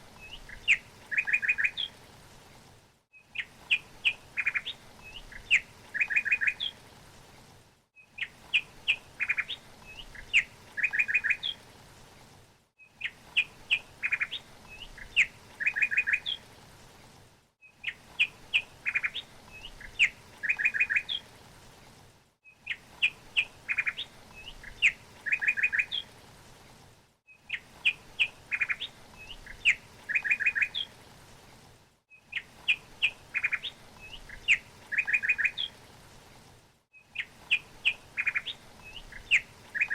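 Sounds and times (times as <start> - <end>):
songbird chirping and trilling: 0.2 - 2.0, 3.2 - 6.8, 8.0 - 11.6, 12.8 - 16.4, 17.7 - 21.2, 22.5 - 26.1, 27.4 - 30.9, 32.2 - 35.8, 37.0 - 39.9.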